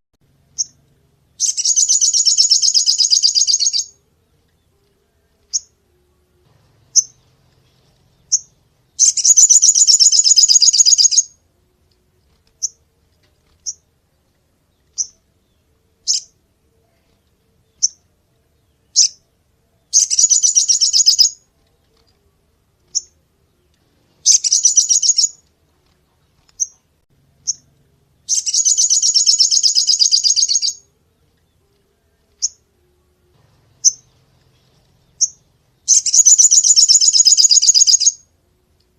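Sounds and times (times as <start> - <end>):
songbird chirping: 0.2 - 38.9
songbird trilling: 1.4 - 4.0, 8.3 - 11.3, 20.0 - 21.4, 24.2 - 25.4, 28.3 - 30.9, 35.1 - 38.2.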